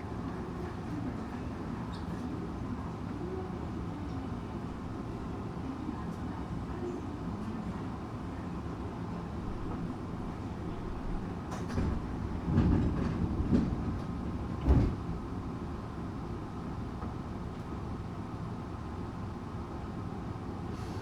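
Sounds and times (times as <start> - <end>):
train rolling rumble: 0.0 - 21.0
train knocks: 11.5 - 15.5.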